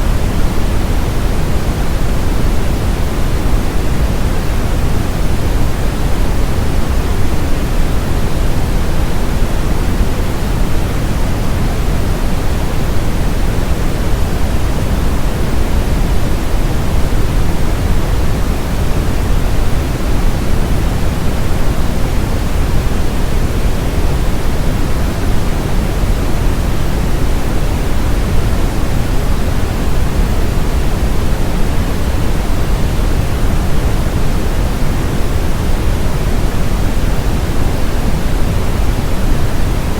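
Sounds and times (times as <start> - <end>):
brown noise: 0.0 - 39.9.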